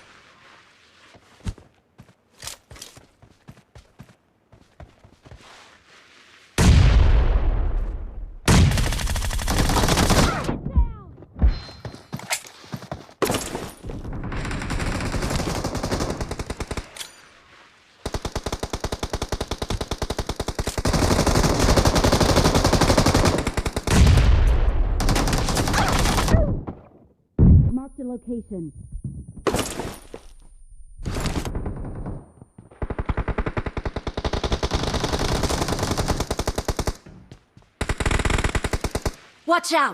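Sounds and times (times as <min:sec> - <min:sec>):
video game automatic gunfire: 0:37.8 - 0:39.2.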